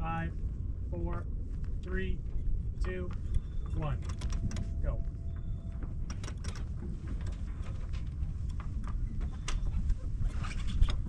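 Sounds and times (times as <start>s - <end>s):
steady low rumble: 0.0s - 11.0s
deck hardware clicks and knocks: 2.8s - 11.0s.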